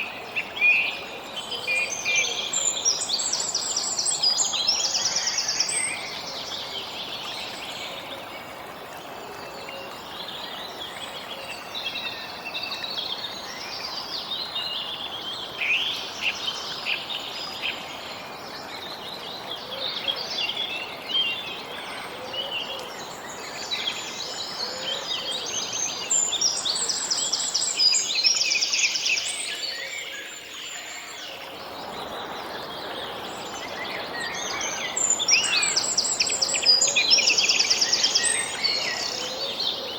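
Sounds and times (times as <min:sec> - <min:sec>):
small birds chirping and trilling: 0:23.2 - 0:39.9.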